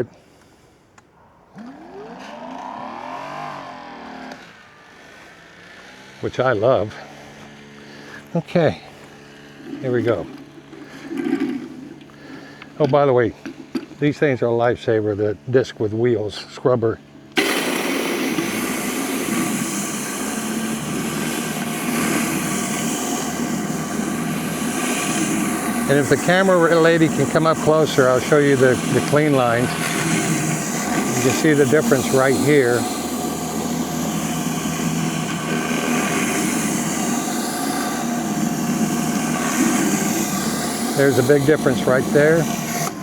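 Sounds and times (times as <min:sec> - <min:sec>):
faint motor hum: 0:00.0 - 0:43.0
pressure washer water jet hissing: 0:17.3 - 0:43.0.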